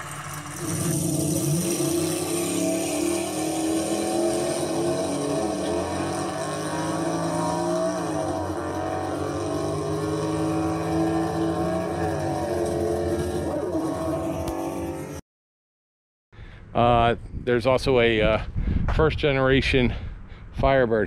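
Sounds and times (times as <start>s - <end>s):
car engine revving: 0.0s - 15.2s.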